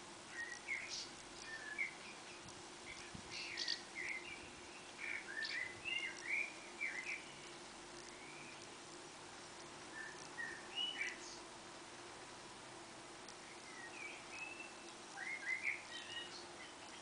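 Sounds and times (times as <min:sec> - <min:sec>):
faint low hum: 0:00.0 - 0:17.0
songbird chirping: 0:00.0 - 0:17.0.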